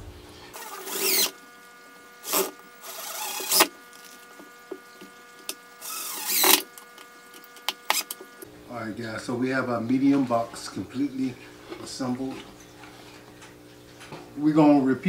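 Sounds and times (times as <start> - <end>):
power drill driving screws: 0.6 - 1.4, 2.2 - 4.2, 5.8 - 6.8, 7.8 - 8.2.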